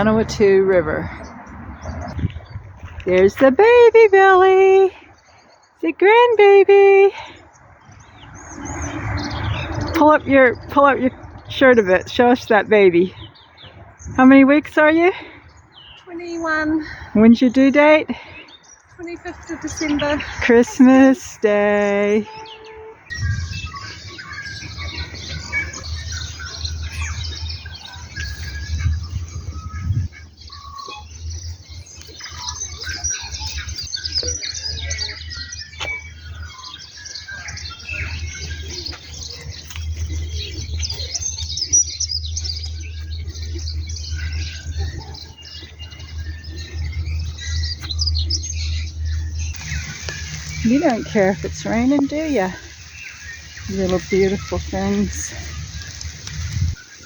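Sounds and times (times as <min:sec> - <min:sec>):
songbirds chirping and trilling: 0:00.0 - 0:57.0
low rumble: 0:37.8 - 0:56.8.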